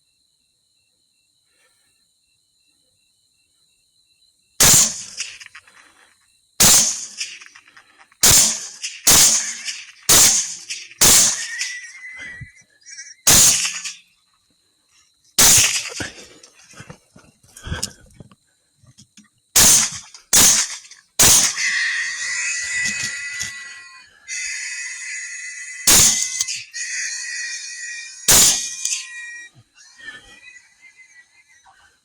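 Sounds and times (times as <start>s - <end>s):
rifle shots with echo: 4.6s - 5.4s, 6.6s - 7.5s, 8.2s - 11.8s, 13.3s - 14.0s, 15.4s - 16.1s, 19.6s - 21.6s, 25.9s - 26.6s, 28.3s - 29.0s
high electronic whine: 21.4s - 29.5s.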